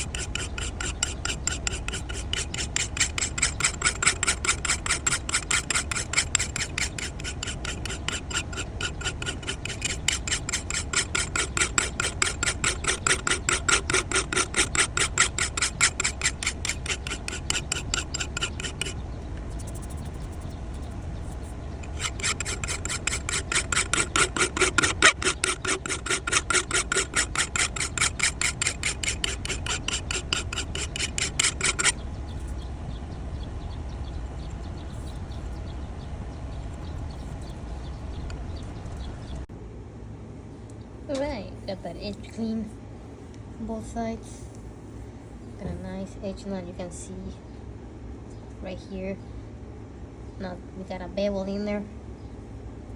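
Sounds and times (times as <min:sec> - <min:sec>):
hand file rasping on steel: 0:00.0 - 0:19.0, 0:21.8 - 0:32.0.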